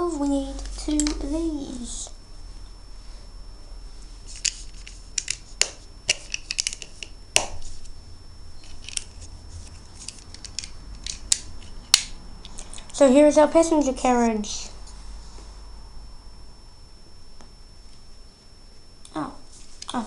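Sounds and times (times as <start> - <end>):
plastic bricks clicking together: 6.1 - 7.0.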